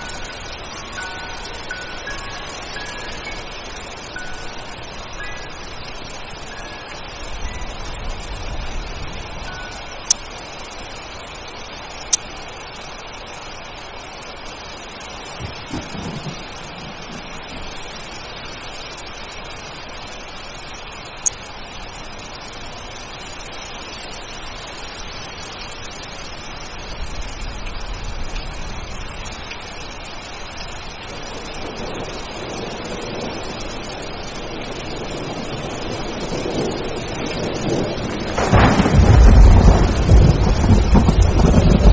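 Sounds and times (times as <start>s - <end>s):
steady rainfall hissing: 0.0s - 41.9s
low rumble of thunder: 7.2s - 10.1s, 15.4s - 18.1s, 26.7s - 41.9s.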